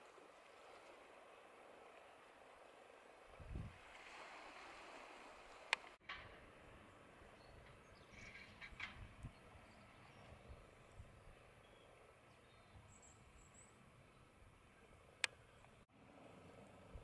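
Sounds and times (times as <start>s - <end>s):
faint steady hiss: 0.0s - 17.0s
distant birds chirping: 5.6s - 15.9s.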